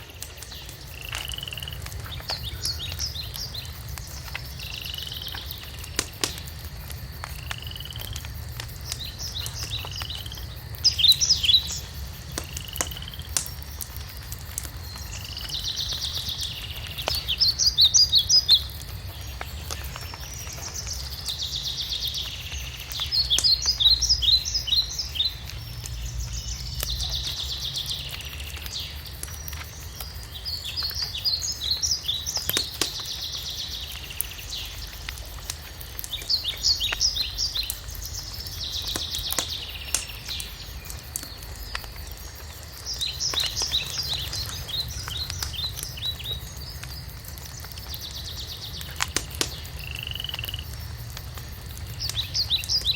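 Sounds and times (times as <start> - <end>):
wood fire crackling: 0.0 - 52.9
birdsong with whistles and trills: 2.1 - 5.7, 19.4 - 29.0.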